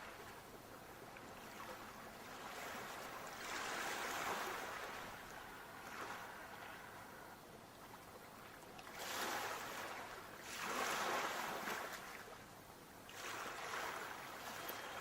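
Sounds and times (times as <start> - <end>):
sea waves washing in: 1.4 - 7.4, 8.4 - 12.3, 13.1 - 15.0.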